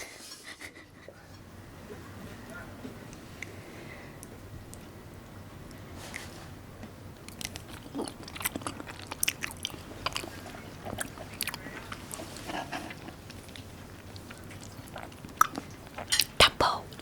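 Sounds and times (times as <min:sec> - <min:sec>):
person chewing food: 0:07.2 - 0:17.0.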